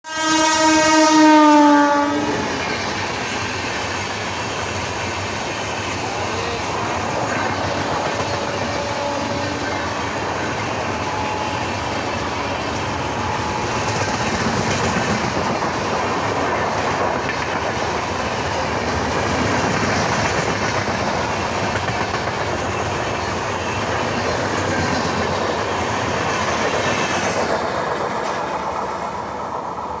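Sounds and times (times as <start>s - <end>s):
train horn: 0.0s - 2.9s, 6.1s - 14.2s
train clattering along rails: 0.4s - 30.0s.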